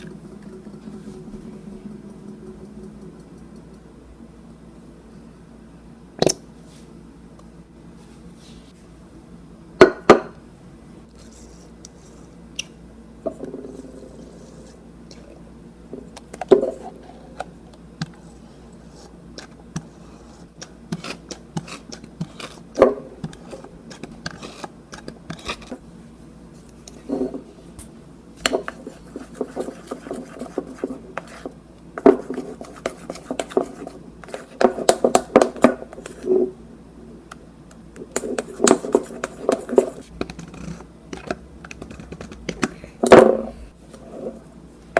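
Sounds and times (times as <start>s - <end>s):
utensil scraping a bowl: 18.1s - 22.6s, 23.3s - 25.8s, 28.5s - 35.0s, 38.1s - 42.4s.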